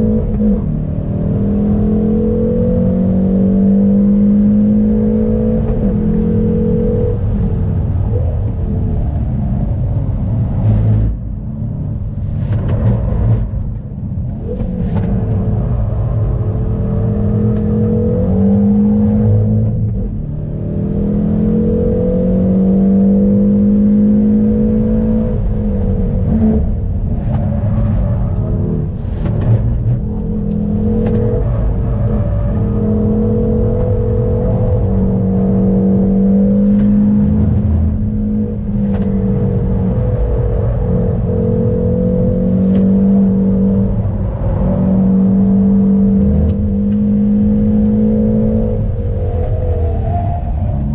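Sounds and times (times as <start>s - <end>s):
car engine revving hard: 0.0s - 7.4s, 16.7s - 49.3s.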